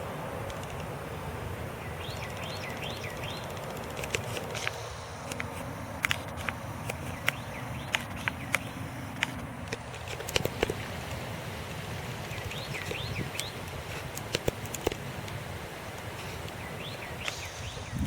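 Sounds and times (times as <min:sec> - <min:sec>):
bird calling: 0:00.0 - 0:10.9, 0:12.1 - 0:15.2, 0:15.8 - 0:18.0
sharp clicks: 0:02.0 - 0:10.8, 0:12.3 - 0:15.4, 0:17.2 - 0:17.6.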